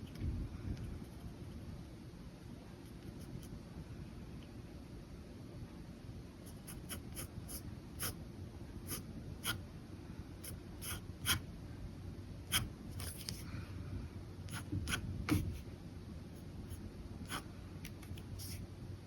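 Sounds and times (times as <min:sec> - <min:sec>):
low room hum: 0:00.0 - 0:19.0
pen scratching on paper: 0:01.0 - 0:01.6, 0:06.5 - 0:08.2, 0:08.9 - 0:09.6, 0:10.4 - 0:11.4, 0:12.5 - 0:13.4, 0:14.5 - 0:15.6, 0:16.7 - 0:17.5, 0:18.1 - 0:18.6.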